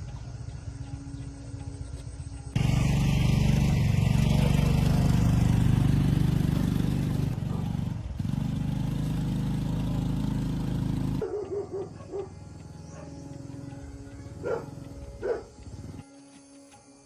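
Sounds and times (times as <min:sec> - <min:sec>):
engine running steadily: 0:00.0 - 0:16.1.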